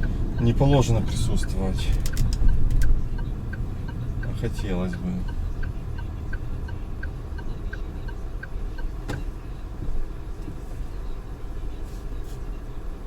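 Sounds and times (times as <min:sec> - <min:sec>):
turn signal ticking: 0:00.0 - 0:11.8
road and engine rumble: 0:00.0 - 0:13.0.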